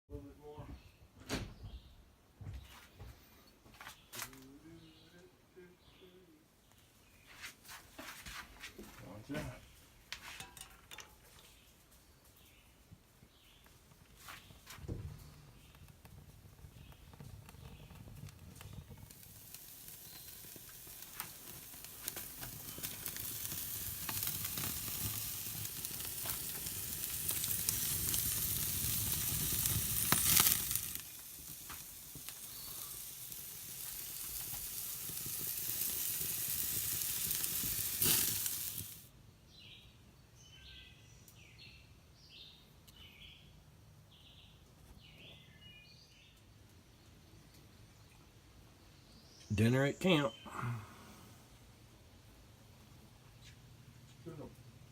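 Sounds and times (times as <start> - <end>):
birds chirping: 0.1 - 7.6, 11.1 - 35.9, 39.4 - 51.4
patties sizzling over campfire: 6.6 - 39.9
fire popping and crackling: 13.2 - 39.1.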